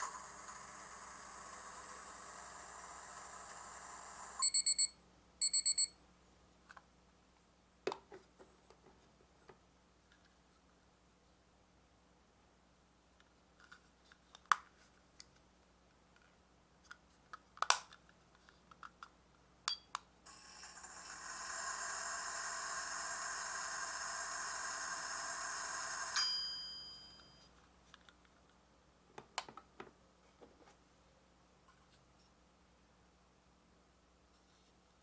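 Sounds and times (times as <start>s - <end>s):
toy microwave hum: 0.0s - 5.9s, 20.3s - 27.4s
microwave ding: 26.1s - 27.4s.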